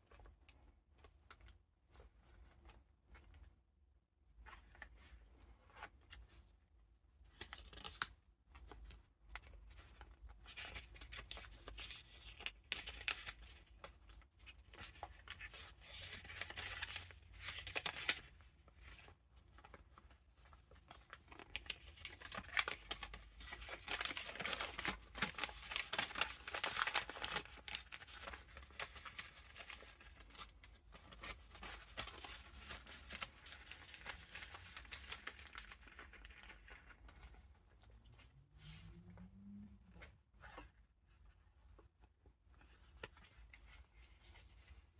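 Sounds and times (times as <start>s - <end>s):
paper rustling and crinkling: 7.3s - 38.3s, 40.2s - 44.9s.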